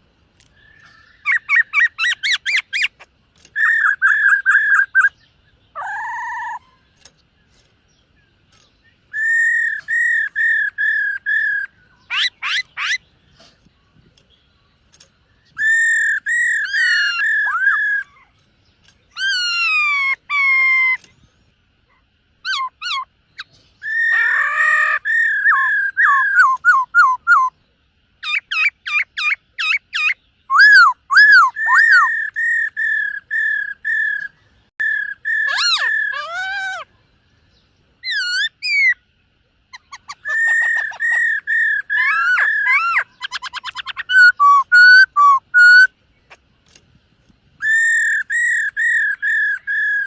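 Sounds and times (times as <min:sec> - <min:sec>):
bird singing whistled phrases: 0:09.1 - 0:13.0, 0:15.5 - 0:18.3, 0:22.4 - 0:27.6, 0:28.2 - 0:36.9, 0:39.7 - 0:46.0, 0:47.6 - 0:50.0.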